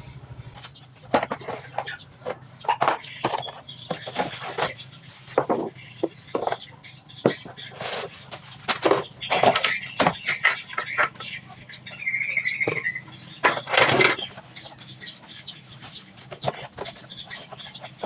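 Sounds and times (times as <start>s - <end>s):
wavering squeal: 9.2s - 16.1s.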